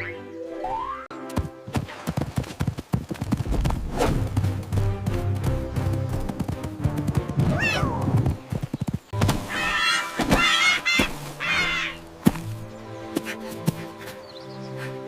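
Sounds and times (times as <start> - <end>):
cartoon background music: 0.0 - 1.4, 4.0 - 8.4.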